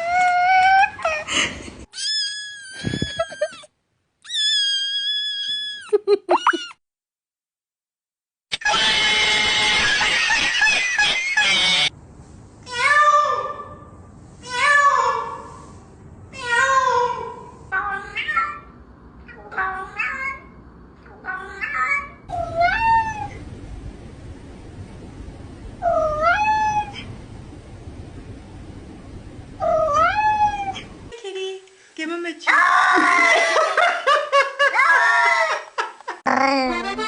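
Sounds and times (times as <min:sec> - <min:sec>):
cats meowing: 0:01.9 - 0:06.7, 0:36.3 - 0:37.0.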